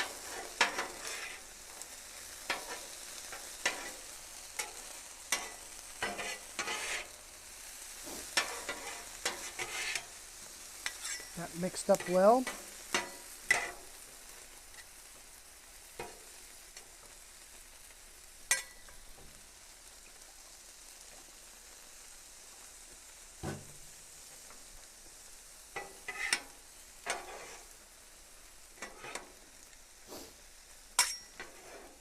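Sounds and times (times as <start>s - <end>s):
metal utensils scraping griddle: 0.0s - 7.2s, 8.0s - 10.2s, 10.8s - 13.9s, 25.7s - 27.8s, 28.8s - 29.4s, 31.0s - 32.0s
food sizzling on a griddle: 0.0s - 32.0s.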